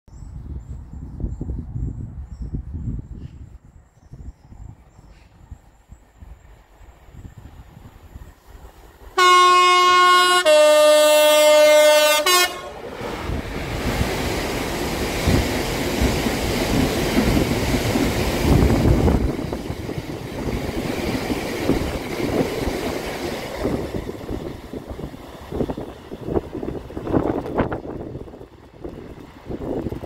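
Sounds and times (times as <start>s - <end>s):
two-tone locomotive horn: 9.2s - 12.9s.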